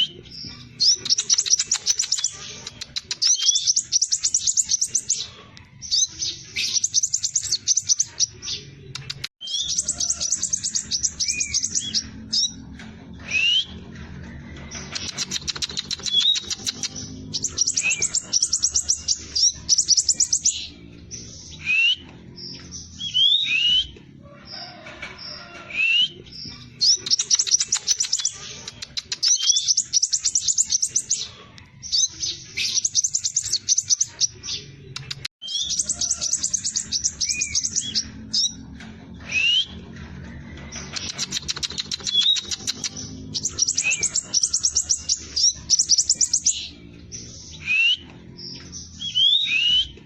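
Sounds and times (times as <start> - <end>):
bird singing rolling song: 0.0 - 50.0.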